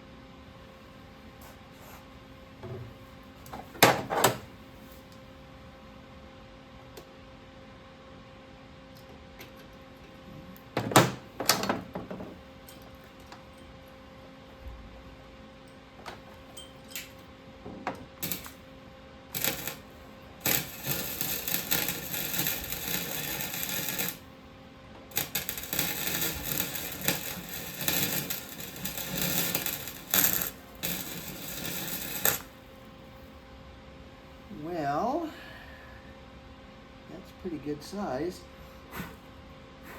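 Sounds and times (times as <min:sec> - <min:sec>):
harsh uneven metal grinding noise: 0:18.2 - 0:18.6, 0:19.3 - 0:24.3, 0:25.1 - 0:32.6.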